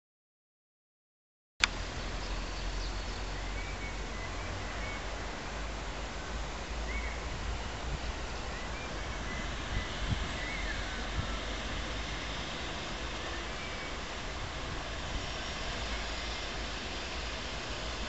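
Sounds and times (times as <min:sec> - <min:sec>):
low wind rumble on microphone: 0:01.8 - 0:18.0.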